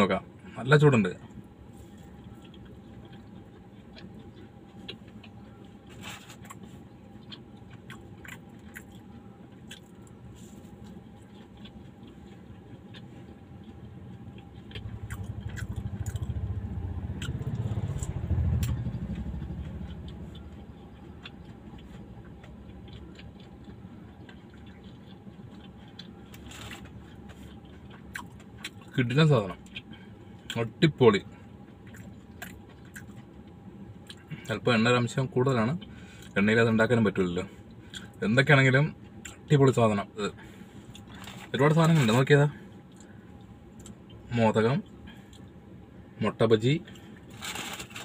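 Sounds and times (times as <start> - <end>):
faint chewing: 1.2 - 34.6, 40.3 - 44.2
vehicle passing: 13.7 - 22.8.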